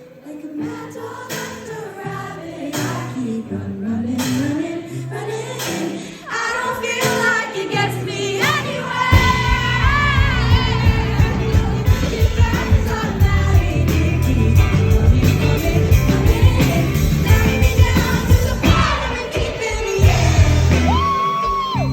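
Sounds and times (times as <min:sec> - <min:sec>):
live band with sung vocals: 0:00.0 - 0:21.9
heavy drums and bass: 0:09.1 - 0:21.9.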